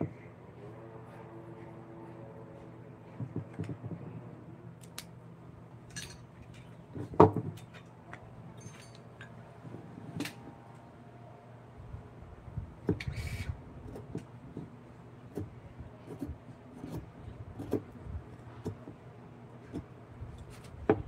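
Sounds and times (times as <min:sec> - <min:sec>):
low hum: 0:00.0 - 0:12.8.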